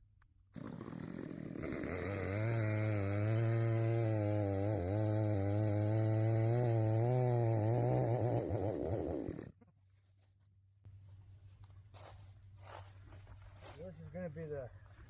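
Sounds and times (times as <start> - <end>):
chainsaw engine running: 0.5 - 9.6.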